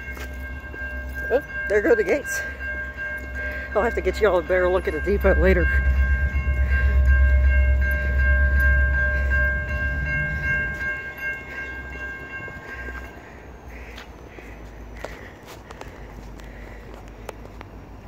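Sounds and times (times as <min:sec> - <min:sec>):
freight train rumbling past: 0:00.0 - 0:18.0
train horn chord: 0:04.6 - 0:11.2.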